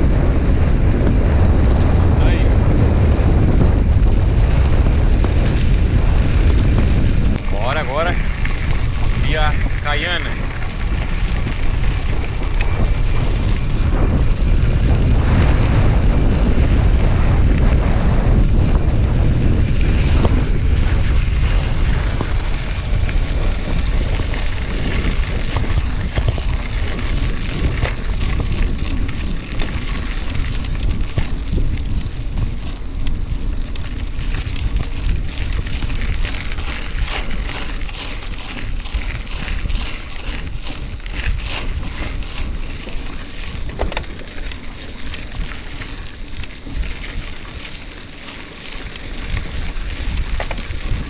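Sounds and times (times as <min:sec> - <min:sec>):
bicycle clicks and rattles: 0:00.0 - 0:51.0
wind buffeting microphone: 0:00.0 - 0:51.0.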